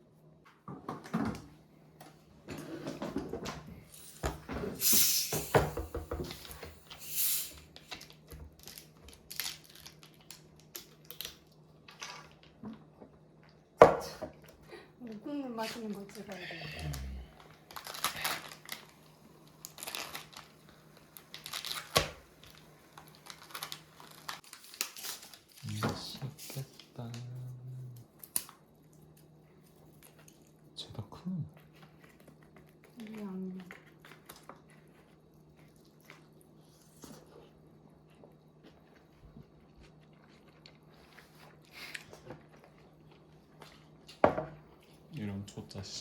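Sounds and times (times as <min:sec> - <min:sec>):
soft chewing: 0:27.1 - 0:45.2.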